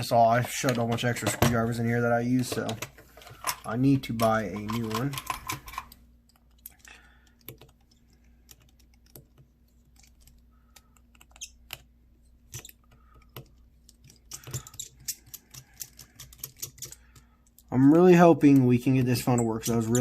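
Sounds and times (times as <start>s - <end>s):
faint steady hum: 0.0s - 20.0s
small tools clicking on plastic: 12.5s - 17.7s.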